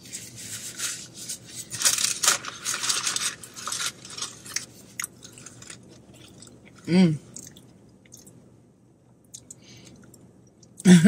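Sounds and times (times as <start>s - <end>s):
paper food wrapper crinkling: 0.0s - 6.8s.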